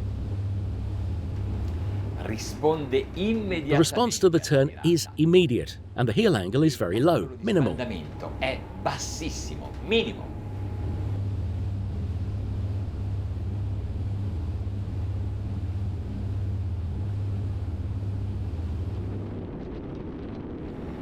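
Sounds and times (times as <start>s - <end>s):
boat diesel engines droning: 0.0s - 19.2s
wind and water noise: 18.6s - 21.0s.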